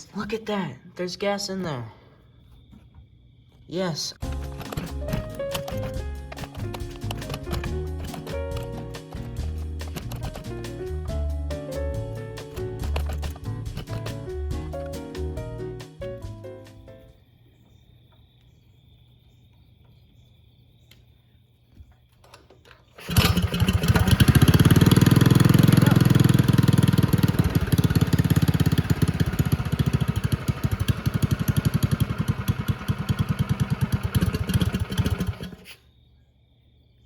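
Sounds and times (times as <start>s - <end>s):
clicks: 4.2s - 11.2s, 12.4s - 15.0s
minibike engine running: 4.2s - 15.0s, 22.9s - 35.7s.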